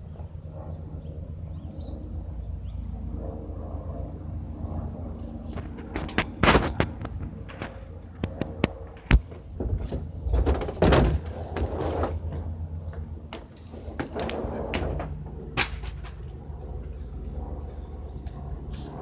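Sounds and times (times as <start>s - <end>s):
helicopter rotor drone: 0.0s - 10.6s, 12.2s - 19.0s
rustling: 9.2s - 12.5s
sharp knocks: 13.4s - 16.4s.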